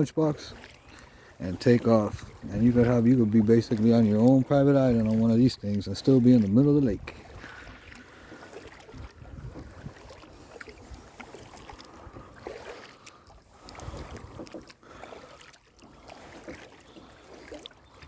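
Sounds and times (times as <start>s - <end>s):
paddle splashing in water: 0.0s - 18.0s
wind buffeting microphone: 1.5s - 12.5s, 13.6s - 14.5s.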